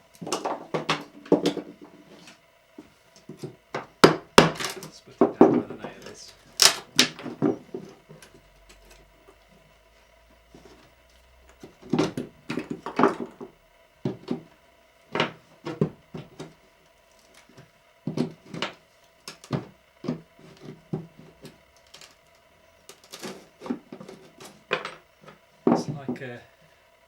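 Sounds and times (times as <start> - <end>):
wood splitting knocks and cracks: 0.2 - 1.8, 3.2 - 8.0, 11.6 - 14.5, 15.1 - 16.6, 17.3 - 22.1.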